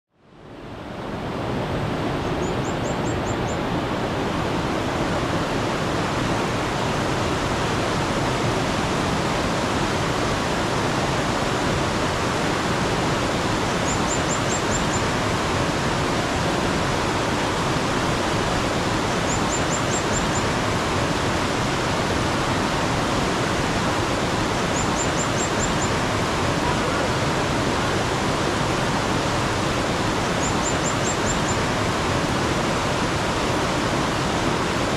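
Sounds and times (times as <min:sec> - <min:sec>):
mountain stream running: 0:00.3 - 0:34.9
small bird chirping: 0:19.3 - 0:20.4, 0:24.7 - 0:25.9, 0:30.4 - 0:31.6.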